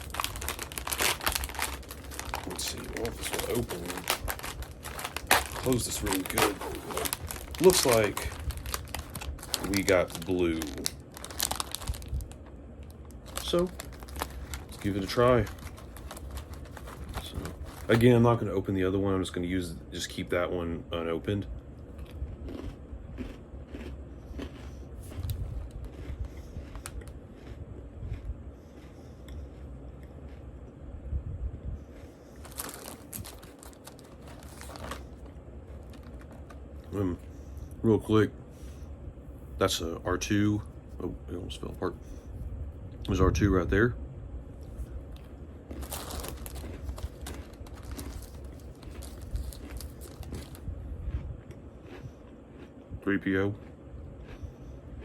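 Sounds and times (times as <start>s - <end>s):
plastic package crinkling: 0.0s - 18.4s, 32.4s - 37.2s, 45.2s - 50.6s.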